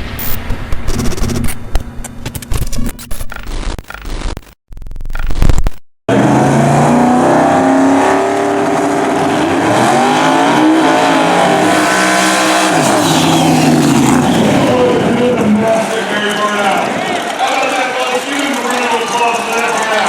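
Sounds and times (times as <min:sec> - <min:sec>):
race car engines at full throttle: 0:06.1 - 0:20.0.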